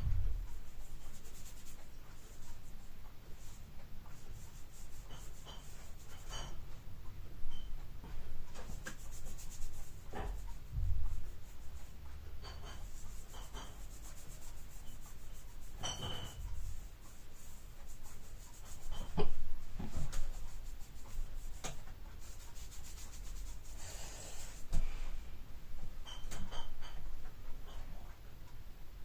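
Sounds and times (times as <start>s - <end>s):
rubbing and scraping on clock case: 3.3s - 6.7s, 8.5s - 24.7s
short hissing scrape: 23.7s - 25.0s.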